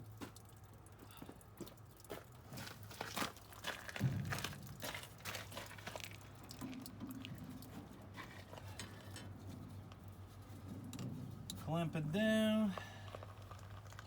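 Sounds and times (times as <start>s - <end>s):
low steady hum: 3.4s - 14.0s.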